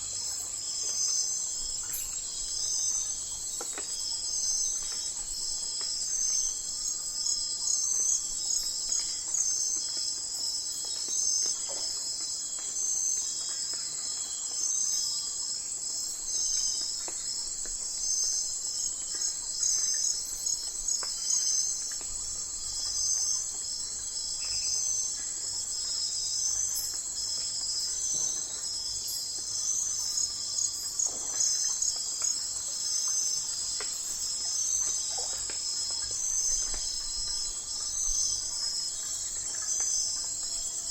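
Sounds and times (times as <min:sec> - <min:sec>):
crickets and insects trilling: 0:00.0 - 0:40.9
faint insect calls: 0:00.0 - 0:40.9.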